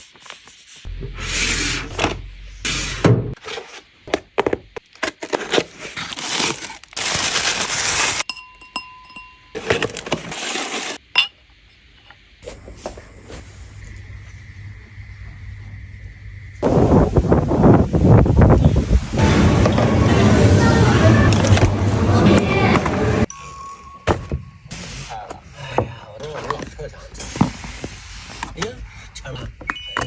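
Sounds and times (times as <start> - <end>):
glass or crockery clinking: 8.2 - 10.0, 11.1 - 11.4
steady high tone: 19.2 - 25.3.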